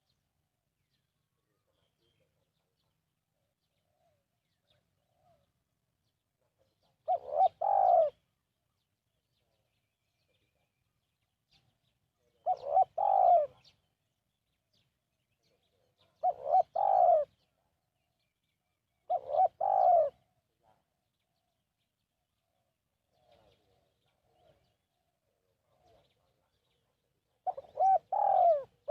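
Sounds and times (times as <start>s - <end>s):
dove cooing: 7.0s - 8.2s, 12.3s - 13.7s, 16.0s - 17.5s, 19.1s - 20.4s, 27.4s - 28.9s.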